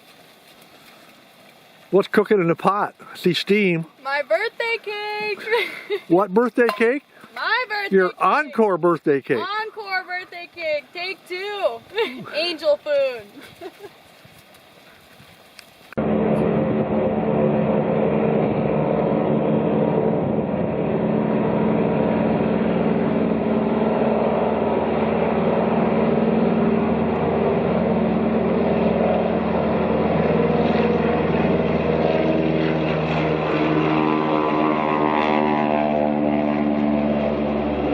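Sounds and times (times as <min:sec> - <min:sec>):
engine running: 0:00.0 - 0:37.9.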